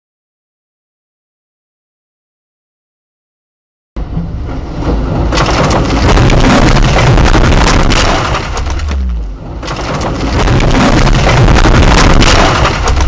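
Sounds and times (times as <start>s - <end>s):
car crash crunching: 4.5s - 13.0s.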